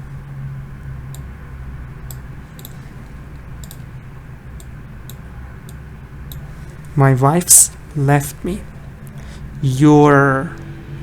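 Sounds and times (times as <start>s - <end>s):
low steady hum: 0.0s - 11.0s
faint light clicks: 2.0s - 2.8s, 3.6s - 3.9s.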